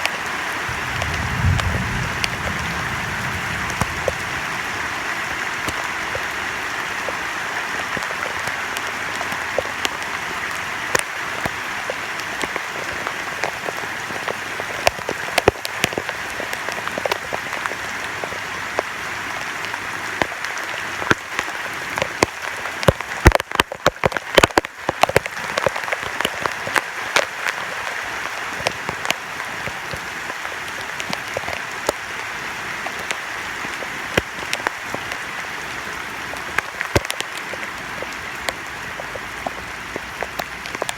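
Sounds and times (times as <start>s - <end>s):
rain drops tapping: 0.0s - 40.9s
heavy rain hissing: 0.1s - 15.4s.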